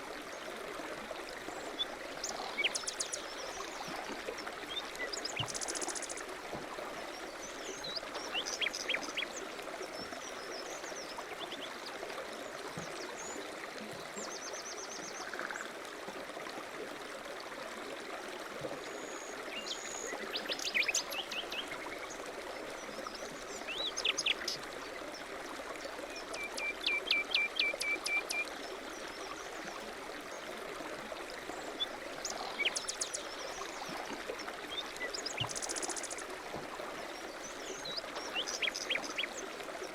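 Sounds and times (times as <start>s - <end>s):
songbirds chirping: 1.2s - 15.6s, 19.0s - 39.9s.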